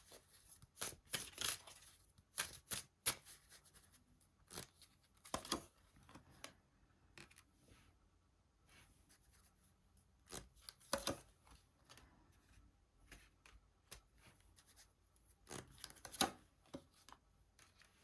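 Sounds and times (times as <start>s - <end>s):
cards rustling and slapping: 0.0s - 3.9s.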